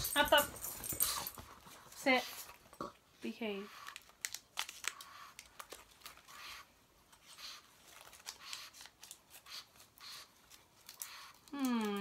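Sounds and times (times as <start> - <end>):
plastic wrapper crinkling: 3.9 - 6.3, 7.8 - 9.4.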